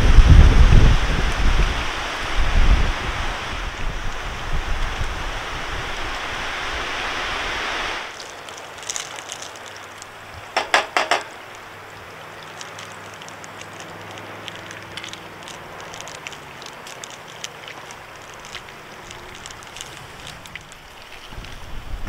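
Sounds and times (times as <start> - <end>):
faint steady background noise: 0.0 - 22.0
light clicks and crackles: 8.1 - 22.0
sharp knocks: 10.6 - 11.4.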